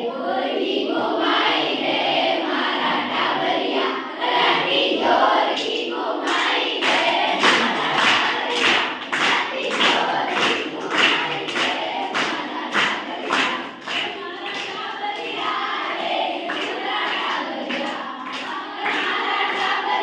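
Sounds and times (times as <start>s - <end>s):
children singing: 0.0s - 20.0s
rhythmic hand clapping: 4.3s - 20.0s.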